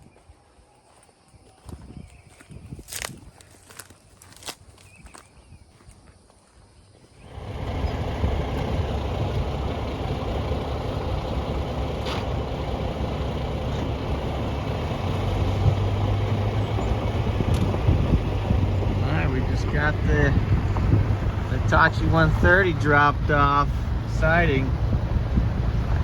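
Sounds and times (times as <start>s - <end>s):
diesel engine rumbling: 7.0s - 26.0s.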